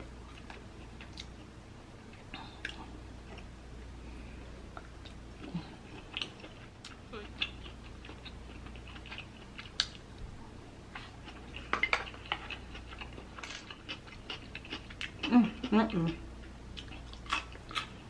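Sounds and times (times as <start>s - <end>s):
person chewing food: 0.2s - 1.5s, 4.8s - 10.0s, 10.9s - 18.0s.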